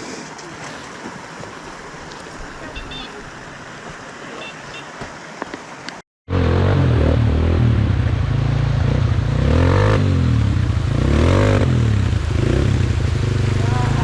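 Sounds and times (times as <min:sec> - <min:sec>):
rushing outdoor noise: 0:00.0 - 0:14.0
off-road vehicle engine running: 0:06.3 - 0:14.0.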